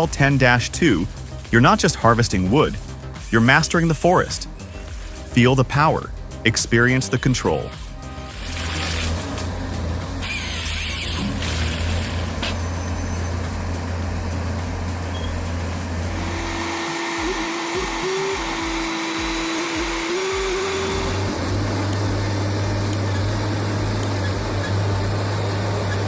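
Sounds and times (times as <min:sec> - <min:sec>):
machine engine humming: 0:15.9 - 0:25.5
steady pulsing whine: 0:16.0 - 0:25.8.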